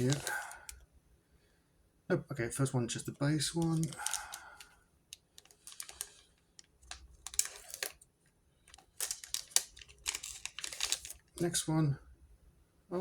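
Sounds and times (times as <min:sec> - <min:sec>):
card wrappers rustling: 0:00.0 - 0:00.8, 0:03.0 - 0:11.7.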